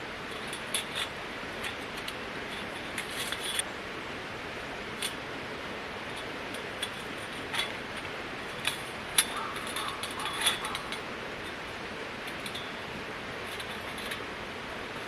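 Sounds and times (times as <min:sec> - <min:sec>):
steady background hiss: 0:00.0 - 0:15.0
light sharp clicks and clinks: 0:06.2 - 0:11.6.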